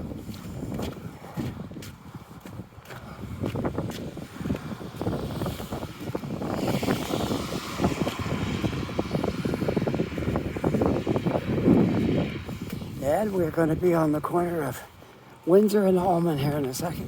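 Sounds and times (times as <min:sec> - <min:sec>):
wind buffeting microphone: 0:00.0 - 0:17.0
vehicle tyre hiss: 0:04.4 - 0:13.1.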